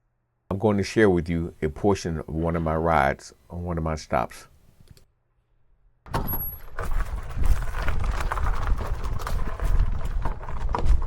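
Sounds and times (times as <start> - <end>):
bike rattling over rough trail: 6.4 - 11.0
wind rumble on microphone: 6.8 - 11.0.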